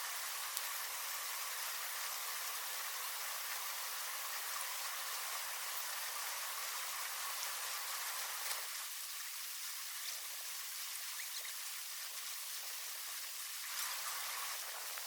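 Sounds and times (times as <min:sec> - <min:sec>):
rushing water: 0:00.0 - 0:15.0
faint ticks and drips: 0:00.1 - 0:15.0.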